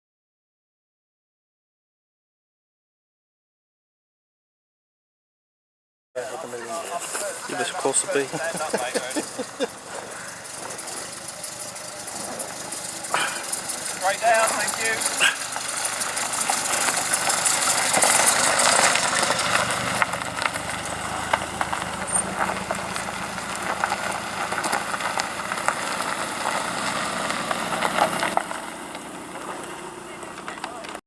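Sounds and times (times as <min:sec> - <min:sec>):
car engine passing slowly: 0:06.2 - 0:31.0.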